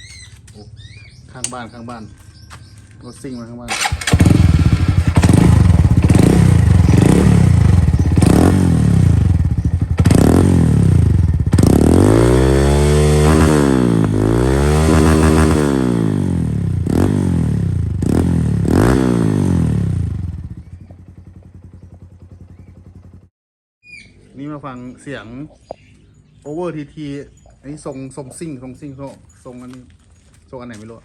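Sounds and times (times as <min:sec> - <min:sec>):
motorcycle engine revving: 0:03.7 - 0:23.3.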